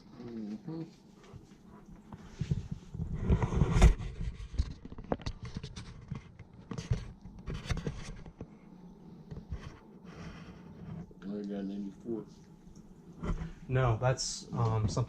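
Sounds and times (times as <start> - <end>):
rustling and scraping handling noise: 0.0 - 8.6, 9.2 - 11.3, 13.1 - 13.7.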